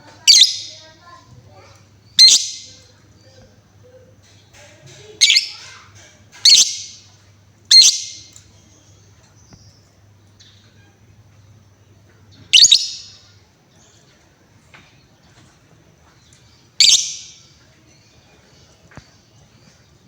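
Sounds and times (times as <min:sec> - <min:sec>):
lovebird shrill calls: 0:00.3 - 0:00.8, 0:02.2 - 0:02.8, 0:05.2 - 0:05.6, 0:06.4 - 0:07.0, 0:07.7 - 0:08.3, 0:12.5 - 0:13.3, 0:16.8 - 0:17.5.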